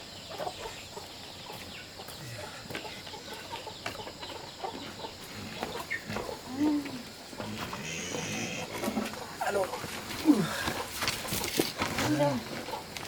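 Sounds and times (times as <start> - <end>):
chickens clucking: 0.0 - 13.0
rustling: 7.5 - 13.0.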